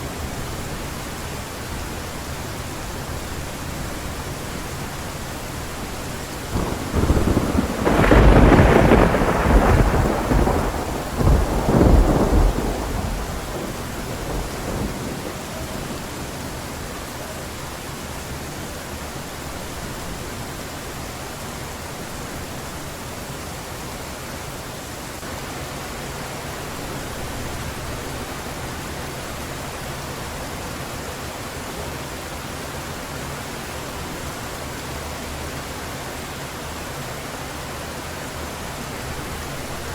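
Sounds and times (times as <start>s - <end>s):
heavy rain falling: 0.0s - 39.9s
rolling thunder: 6.5s - 16.6s.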